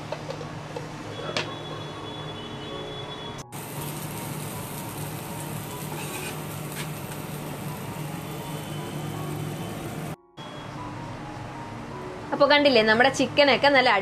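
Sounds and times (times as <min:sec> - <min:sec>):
chicken sizzling in a pan: 0:03.5 - 0:10.2.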